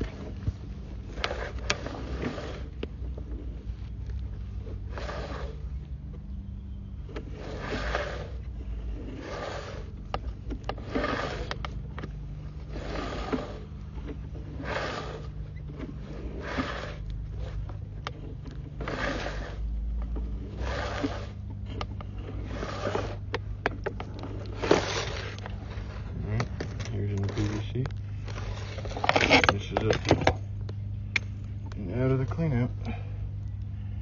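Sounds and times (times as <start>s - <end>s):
steady low hum: 0.0s - 34.0s
cable scraping swish: 7.2s - 10.0s, 10.6s - 11.7s, 14.5s - 19.7s, 20.4s - 21.4s, 22.2s - 23.3s.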